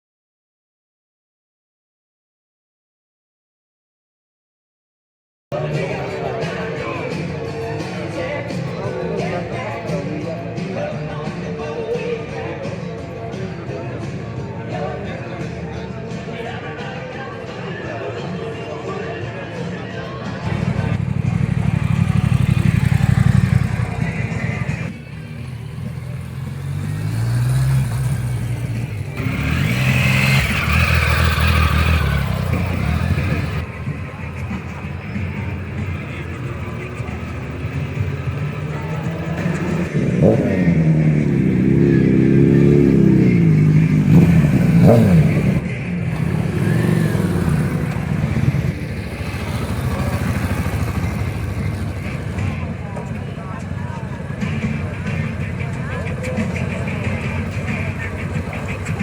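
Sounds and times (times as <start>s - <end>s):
motorcycle engines running: 5.6s - 11.8s, 20.4s - 59.0s.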